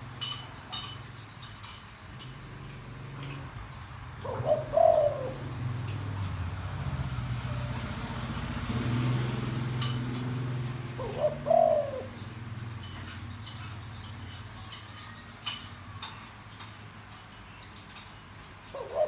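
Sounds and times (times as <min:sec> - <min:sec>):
dove cooing: 0:03.1 - 0:13.9, 0:18.7 - 0:19.0.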